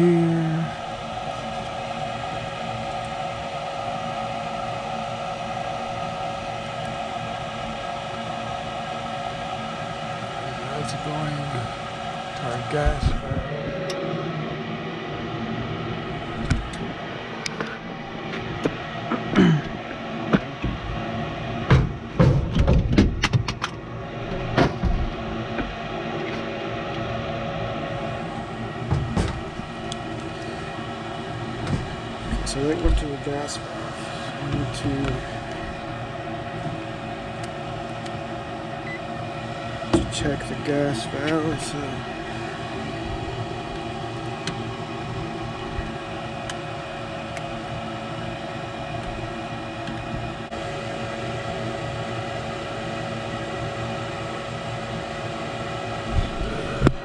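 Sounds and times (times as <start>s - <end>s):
furnace machinery humming: 0.0s - 57.0s
faint steady tones: 0.3s - 18.1s.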